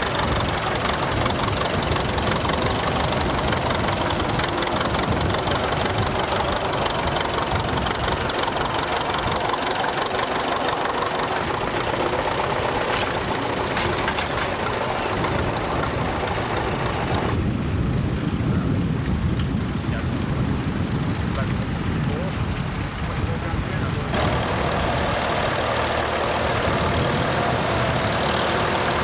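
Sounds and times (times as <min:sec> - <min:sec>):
tractor engine rumble: 0:00.0 - 0:29.0.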